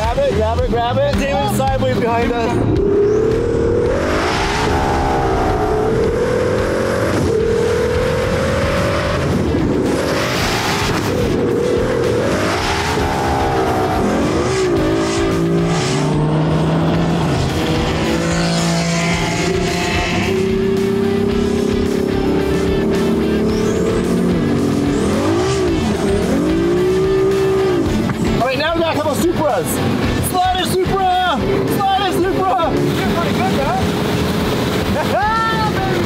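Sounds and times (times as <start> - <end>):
car engine revving through upshifts: 1.9 - 28.5.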